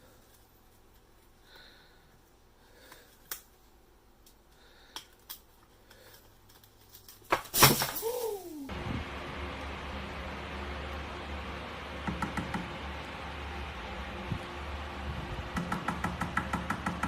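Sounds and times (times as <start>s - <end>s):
object crashing on floor: 7.3s - 8.4s.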